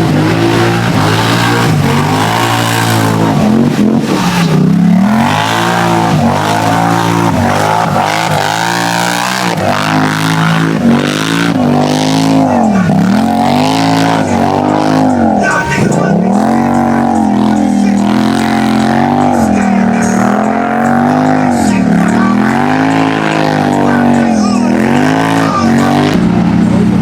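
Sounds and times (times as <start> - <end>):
off-road engine revving hard: 0.0 - 27.0.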